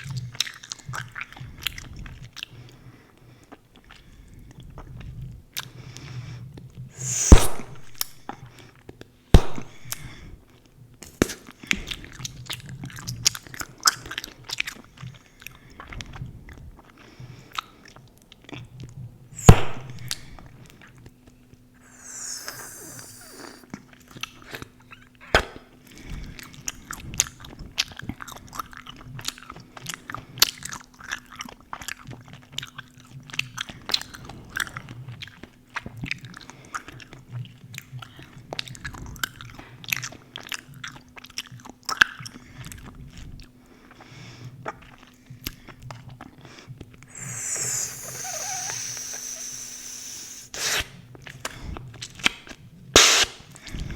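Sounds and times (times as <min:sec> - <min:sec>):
gum bubbles popping: 0:19.4 - 0:20.4, 0:21.8 - 0:23.6, 0:47.1 - 0:50.8
gum chewing with wet smacks: 0:26.3 - 0:43.3, 0:44.6 - 0:48.4.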